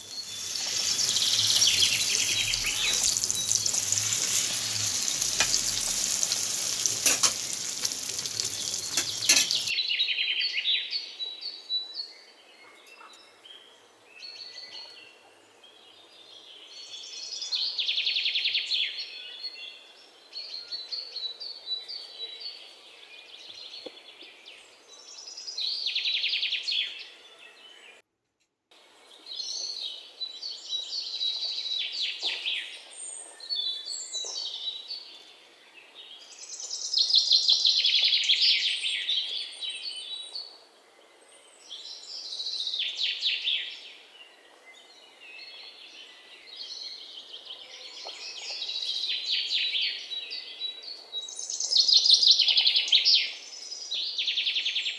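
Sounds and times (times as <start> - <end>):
birds chirping: 0.0 - 9.7
bread sizzling in hot oil: 0.0 - 9.7.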